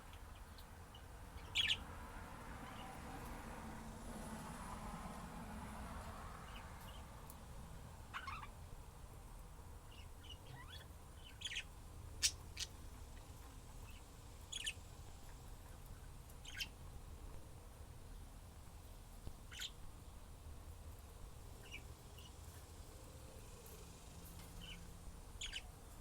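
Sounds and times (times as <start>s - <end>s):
budgerigars chirping: 0.0s - 1.9s, 8.1s - 8.6s, 9.9s - 12.8s, 13.8s - 14.9s, 16.4s - 16.8s, 19.5s - 19.8s, 21.6s - 22.3s, 24.6s - 24.8s, 25.4s - 25.7s.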